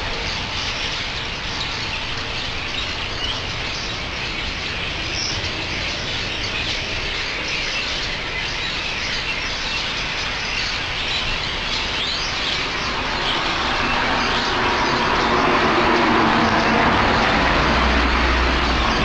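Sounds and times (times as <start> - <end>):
flock of birds chattering: 0.0 - 19.0
passing vehicle engine: 12.3 - 19.0.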